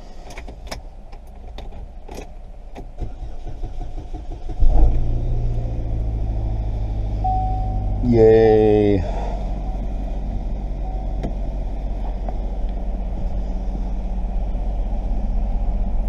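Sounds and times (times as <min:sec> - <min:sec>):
car engine starting and idling: 0:00.0 - 0:16.0
brief beep: 0:07.2 - 0:08.0.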